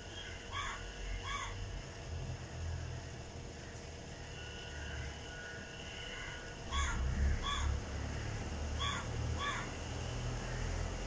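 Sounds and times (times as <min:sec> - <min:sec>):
bird calls: 0:00.0 - 0:01.6, 0:05.9 - 0:11.0.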